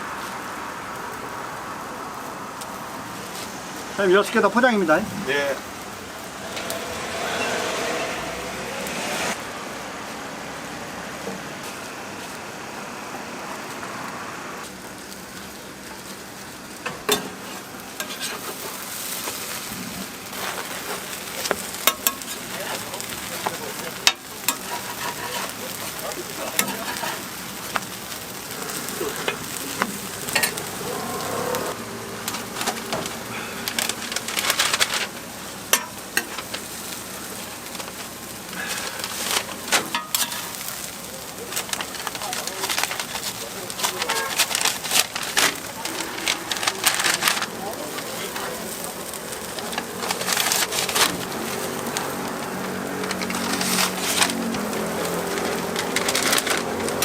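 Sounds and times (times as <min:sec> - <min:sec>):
toast sizzling on a griddle: 0:00.0 - 0:57.0
cooking tools tapping and clicking: 0:16.8 - 0:18.8, 0:20.4 - 0:28.0, 0:28.7 - 0:30.8, 0:32.2 - 0:36.8, 0:37.7 - 0:57.0.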